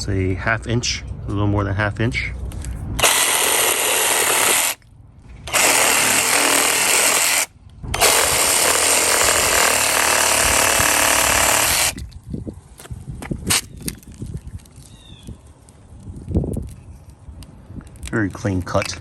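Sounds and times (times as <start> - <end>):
reciprocating saw cutting: 3.0 - 4.8, 5.5 - 12.0.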